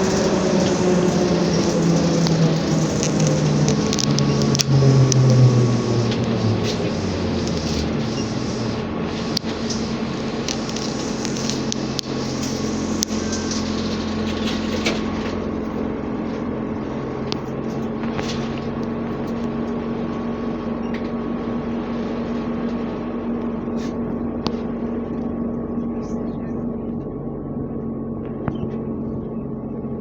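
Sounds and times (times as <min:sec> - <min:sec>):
high hiss: 0:00.0 - 0:15.3
electrical hum: 0:00.0 - 0:30.0.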